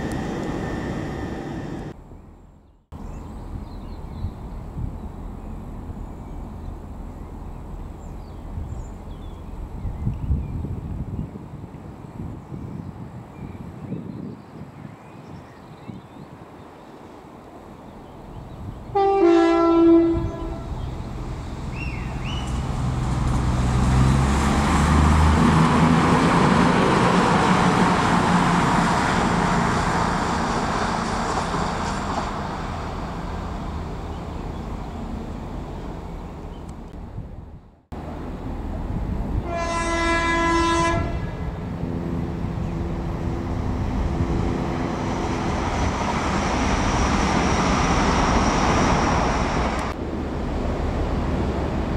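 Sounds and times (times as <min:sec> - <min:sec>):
steady engine drone: 0:00.0 - 0:02.0
train running past at speed: 0:00.0 - 0:02.0, 0:17.2 - 0:36.7, 0:38.0 - 0:51.9
train horn: 0:18.9 - 0:20.8, 0:39.4 - 0:41.5.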